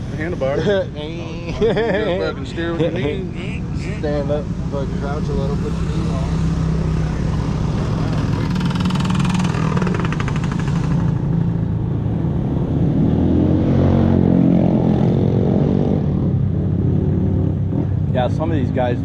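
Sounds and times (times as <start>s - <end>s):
small motorcycle engines running: 4.0s - 11.7s
motorcycle passing by: 4.0s - 18.8s.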